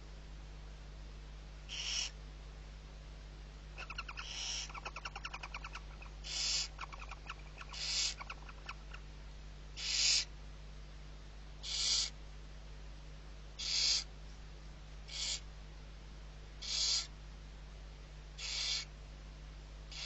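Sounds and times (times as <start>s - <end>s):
owl chick hissing: 1.7s - 2.2s, 3.8s - 9.0s, 9.8s - 10.3s, 11.6s - 12.2s, 13.6s - 14.1s, 15.1s - 15.5s, 16.6s - 17.1s, 18.4s - 18.9s.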